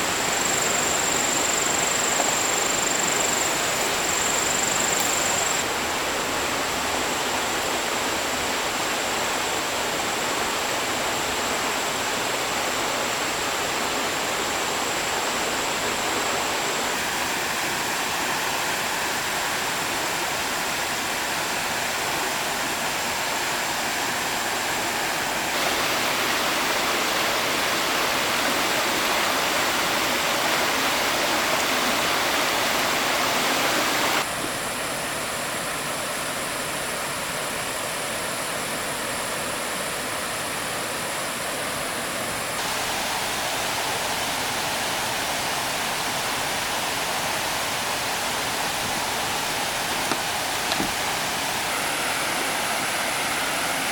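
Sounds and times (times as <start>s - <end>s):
stream water rushing: 0.0s - 53.9s.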